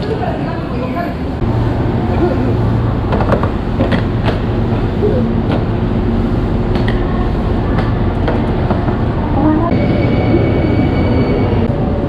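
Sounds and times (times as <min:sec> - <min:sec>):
train rumbling: 0:00.0 - 0:12.0
high-pitched tone: 0:09.4 - 0:11.7.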